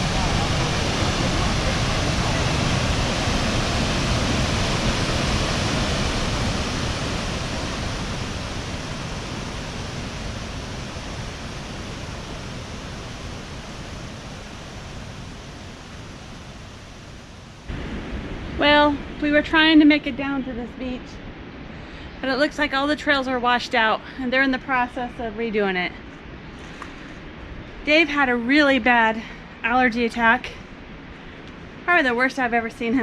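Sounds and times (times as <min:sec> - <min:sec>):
waterfall rushing roar: 0:00.0 - 0:20.2.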